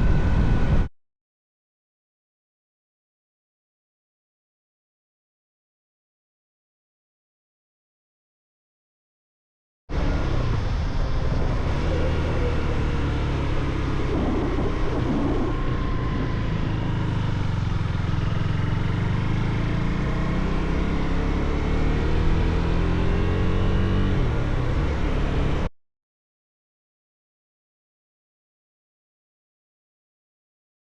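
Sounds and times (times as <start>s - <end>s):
motorcycle engine accelerating: 9.9s - 25.7s.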